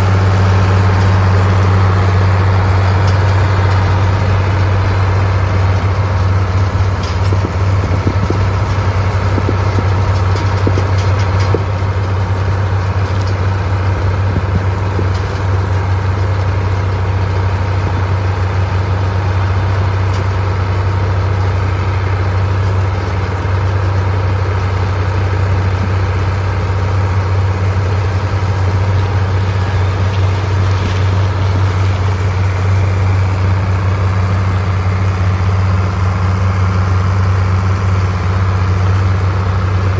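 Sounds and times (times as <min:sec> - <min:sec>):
tractor engine droning: 0:00.0 - 0:39.9.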